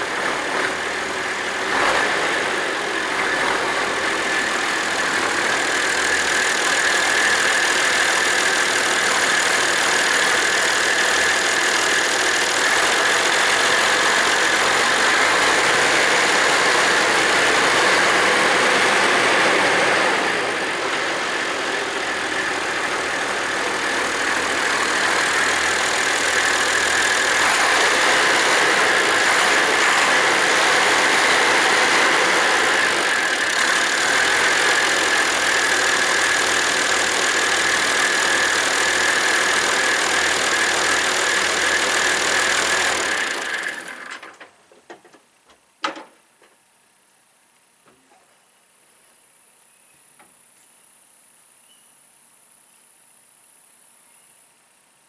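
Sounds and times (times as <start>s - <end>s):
tractor diesel engine idling: 0.0s - 44.3s.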